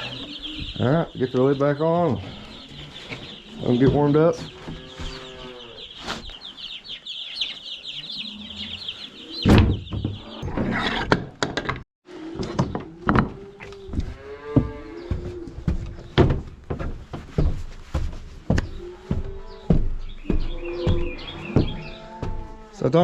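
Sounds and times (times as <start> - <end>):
chickens clucking: 0.0 - 10.4
baby chicks peeping: 0.0 - 10.5, 18.5 - 23.0
chickens calling: 0.0 - 11.0, 12.4 - 16.6, 17.3 - 23.0.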